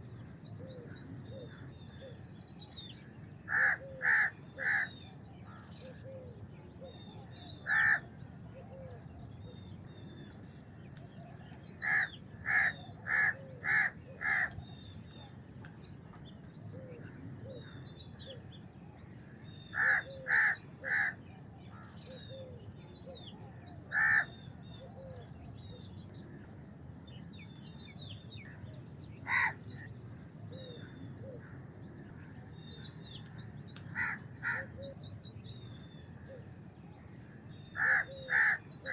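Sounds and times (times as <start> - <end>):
crow cawing: 3.5 - 4.9, 7.6 - 8.0, 11.8 - 14.6, 19.7 - 21.2, 23.9 - 24.3, 29.3 - 29.6, 33.9 - 34.8, 37.8 - 38.9
small birds chirping: 9.2 - 38.9.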